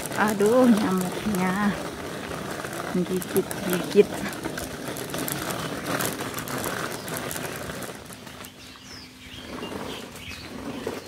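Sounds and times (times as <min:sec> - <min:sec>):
rattling clattering noise: 0:00.0 - 0:08.7
small birds chirping: 0:00.0 - 0:11.0.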